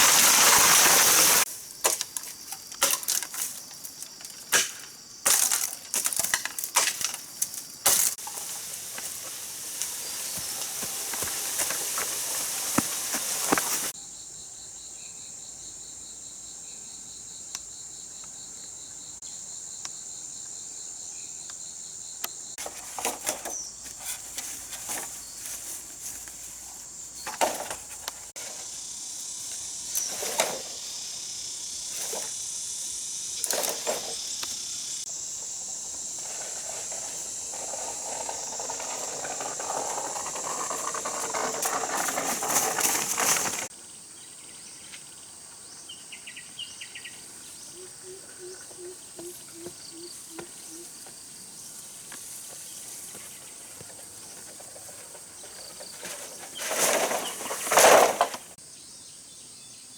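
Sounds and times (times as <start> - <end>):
insects chirring: 0.0 - 59.9
knocks and scrapes from hand work: 22.6 - 26.4, 27.2 - 28.8.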